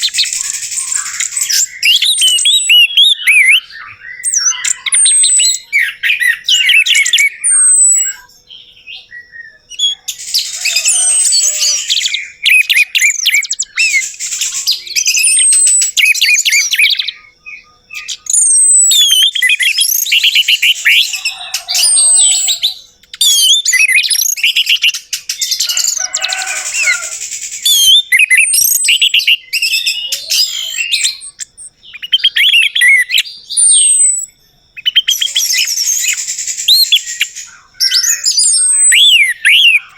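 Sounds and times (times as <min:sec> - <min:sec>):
thrush singing: 0:19.4 - 0:22.8.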